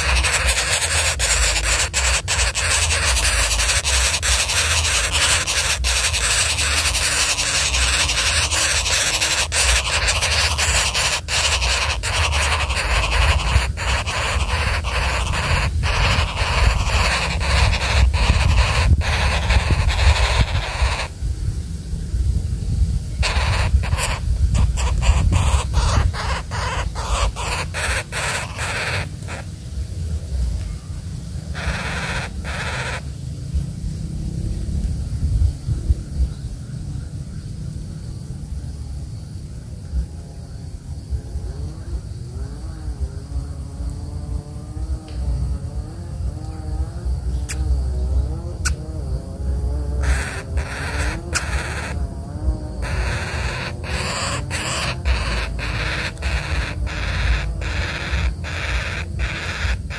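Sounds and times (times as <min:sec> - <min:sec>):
woodpecker harsh calls: 0:00.0 - 0:21.2, 0:23.2 - 0:29.6, 0:31.4 - 0:33.2, 0:48.6 - 0:48.8, 0:49.9 - 0:59.9
wind rumble on microphone: 0:00.0 - 0:59.9
bird with low wavering call: 0:31.5 - 0:33.0, 0:52.8 - 0:59.9.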